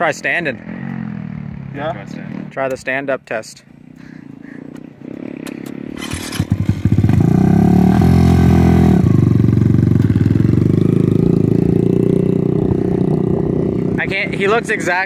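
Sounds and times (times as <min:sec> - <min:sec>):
mini bike engine revving: 0:05.0 - 0:14.5.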